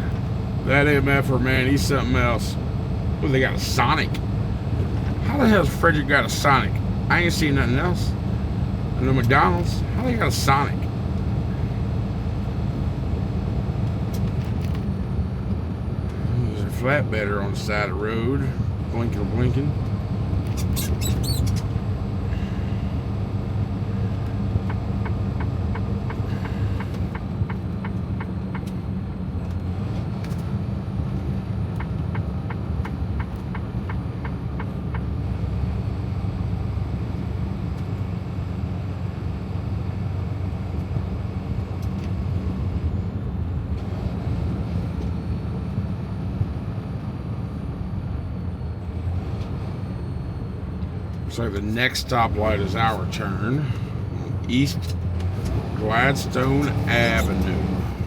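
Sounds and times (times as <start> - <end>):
truck engine and road noise: 0.0 - 58.0.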